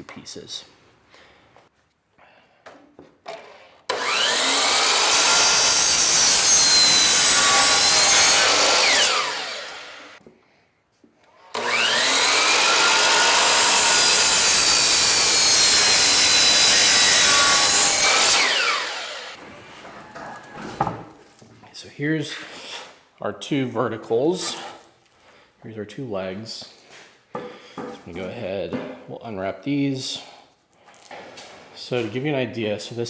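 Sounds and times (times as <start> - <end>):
power saw cutting wood: 3.9 - 10.2, 11.5 - 19.4.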